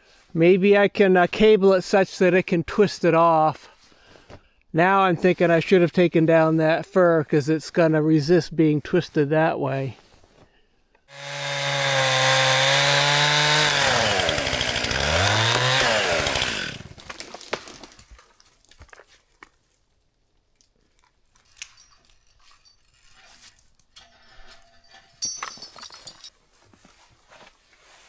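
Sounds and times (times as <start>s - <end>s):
chainsaw cutting: 11.1s - 18.2s
scattered knocks and cracks: 16.9s - 19.0s.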